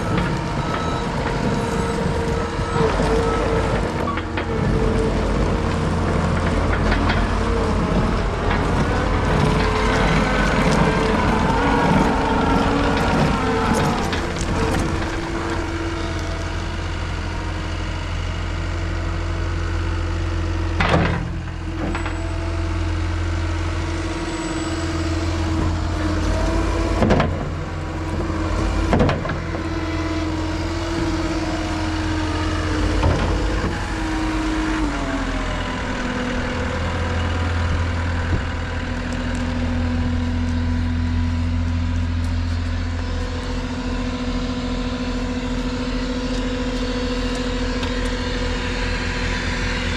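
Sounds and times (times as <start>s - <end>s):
machine whine: 0.0s - 18.8s
diesel engine droning: 0.0s - 49.9s.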